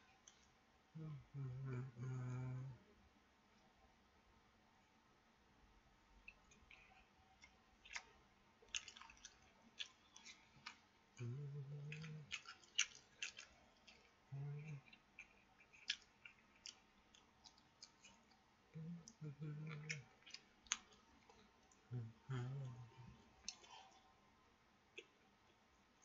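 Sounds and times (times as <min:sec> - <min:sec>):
low voice hums: 0:01.0 - 0:02.8, 0:11.2 - 0:12.4, 0:14.3 - 0:14.9, 0:18.8 - 0:20.1, 0:21.9 - 0:23.8
person chewing: 0:06.2 - 0:24.0
wet mouth clicks and smacks: 0:15.2 - 0:18.4.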